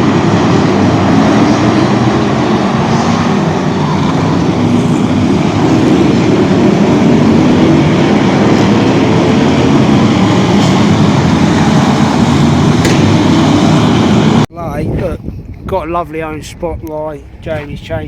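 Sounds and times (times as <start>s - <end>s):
vehicle engines rumbling: 0.0s - 18.0s.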